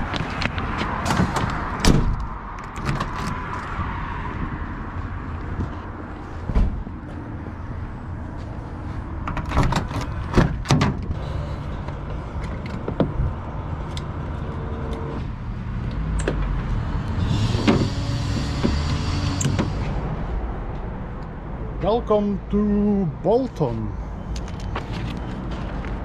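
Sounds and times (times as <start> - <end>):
diesel lorry engine rumbling: 5.5 - 20.4.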